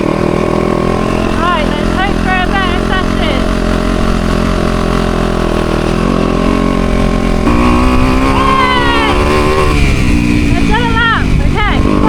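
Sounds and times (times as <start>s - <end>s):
motocross bike engine revving: 0.0s - 12.0s.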